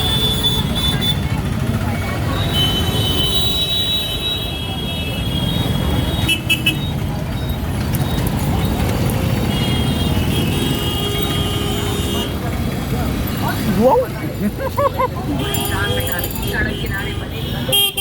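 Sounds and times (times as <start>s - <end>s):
vehicle horns honking: 0.0s - 1.4s, 2.4s - 7.1s, 9.3s - 12.5s, 15.3s - 18.0s
wind and road noise: 5.3s - 18.0s.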